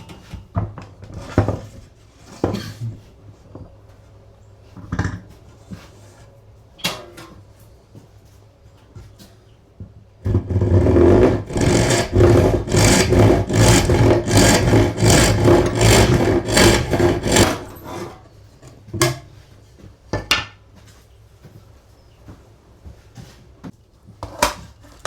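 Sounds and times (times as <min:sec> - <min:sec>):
rasp scraping back and forth: 0:10.3 - 0:18.4.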